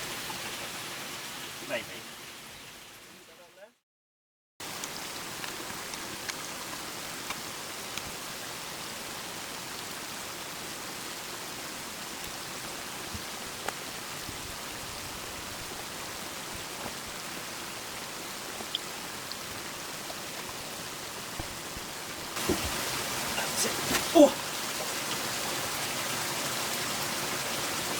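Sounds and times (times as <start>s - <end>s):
water spraying from pipe: 4.6s - 27.9s
drops and splashes: 18.2s - 27.3s.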